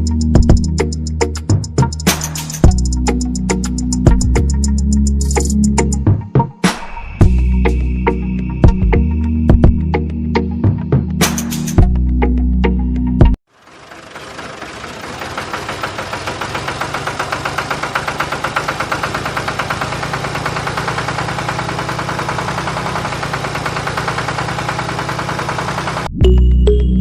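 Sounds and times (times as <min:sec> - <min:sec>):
engine knocking rapidly: 0:13.5 - 0:26.1.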